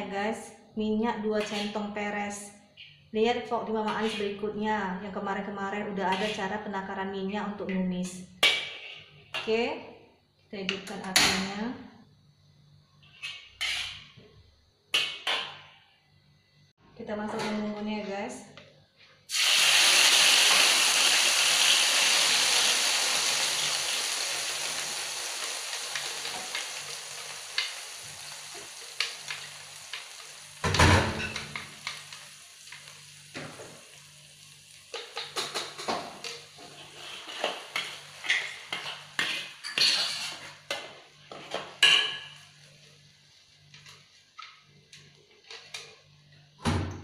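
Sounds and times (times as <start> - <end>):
metal spatula scraping a wok: 1.4 - 2.0, 3.8 - 4.5, 6.0 - 6.6, 13.0 - 14.2, 36.6 - 40.7
paste sizzling in hot oil: 19.3 - 35.4.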